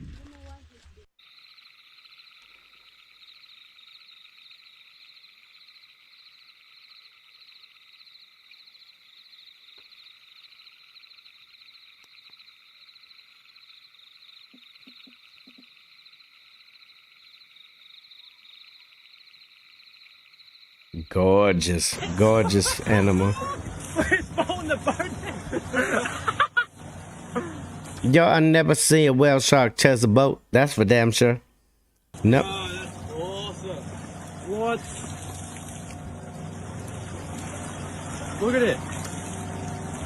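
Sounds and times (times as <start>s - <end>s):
high pulsing animal chirring: 32.2s - 40.0s.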